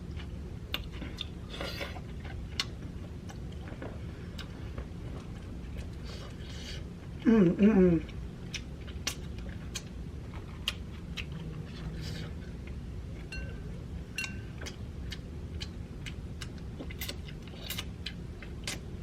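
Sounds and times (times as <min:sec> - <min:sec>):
crackly crunches of chewing: 0:00.0 - 0:07.2, 0:08.0 - 0:13.3, 0:14.5 - 0:19.0
steady low hum: 0:00.0 - 0:19.0
mouth clicks while chewing: 0:10.6 - 0:11.5, 0:14.2 - 0:18.9.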